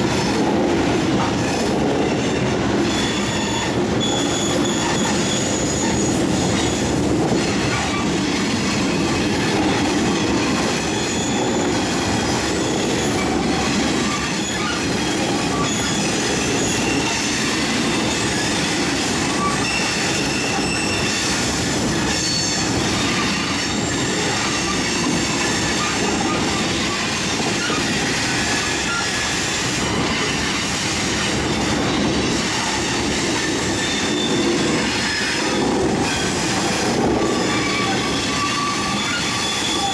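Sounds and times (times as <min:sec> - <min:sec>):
train wheels rumbling on rails: 0:00.0 - 0:39.9
high-pitched wheel squeals: 0:02.0 - 0:07.0, 0:10.9 - 0:18.6, 0:19.2 - 0:21.4, 0:22.0 - 0:30.4, 0:31.3 - 0:36.5, 0:37.1 - 0:39.9.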